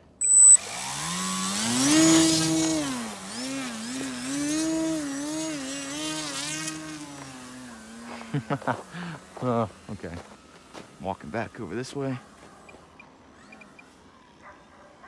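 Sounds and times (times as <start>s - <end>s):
electric motor and propeller whining: 0.0s - 14.4s.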